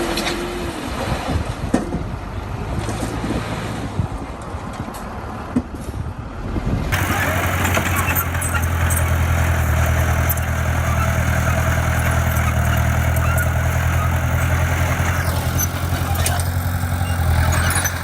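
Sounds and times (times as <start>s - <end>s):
wind on microphone: 0.6s - 4.7s
diesel engine running: 6.9s - 18.0s.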